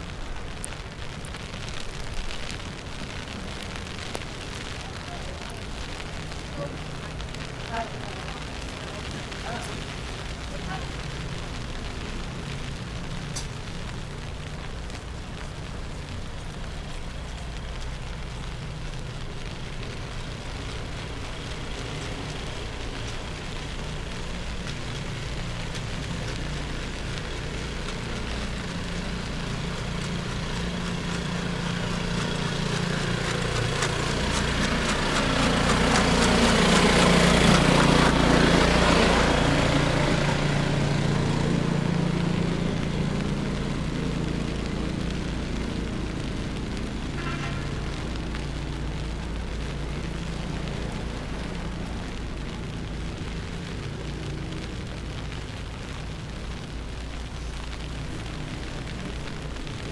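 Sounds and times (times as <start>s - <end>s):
tyre hiss on wet road: 0.0s - 59.9s
vehicle driving past: 19.4s - 55.4s.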